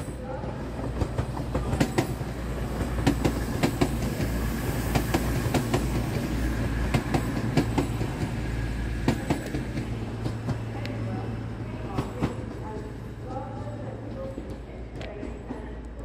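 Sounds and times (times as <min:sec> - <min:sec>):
wheels clicking over rail joints: 0:00.0 - 0:08.4
train rumbling past: 0:00.0 - 0:16.0.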